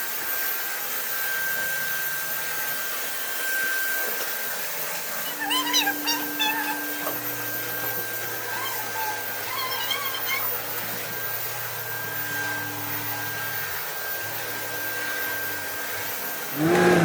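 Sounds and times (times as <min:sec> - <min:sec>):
chirping animal calls: 0:05.2 - 0:13.4.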